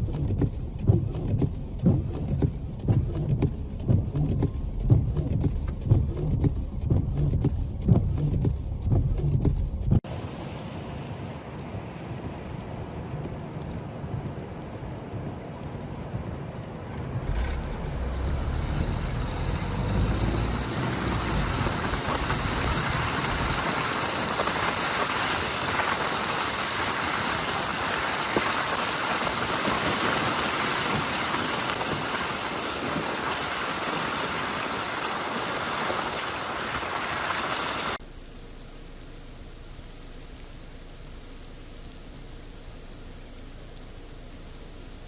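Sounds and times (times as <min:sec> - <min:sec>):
wind rumble on microphone: 0:00.0 - 0:38.0
steady rushing outdoor noise: 0:00.0 - 0:38.1
steady hiss: 0:10.1 - 0:45.0.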